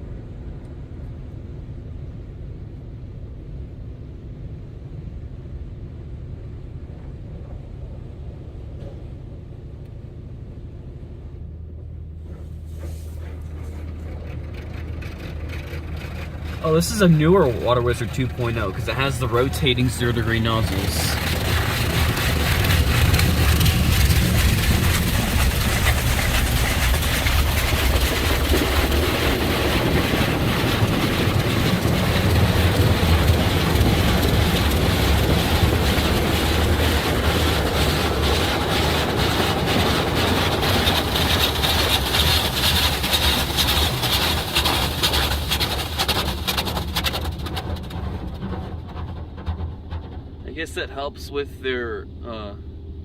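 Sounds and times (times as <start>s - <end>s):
low rumble: 0.0s - 53.0s
high-pressure water spraying on car: 13.0s - 47.9s.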